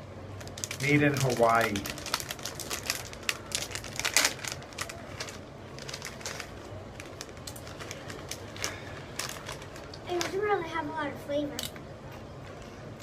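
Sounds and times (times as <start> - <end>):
chip packet crackling: 0.3 - 10.4
chips being crunched: 0.4 - 10.0.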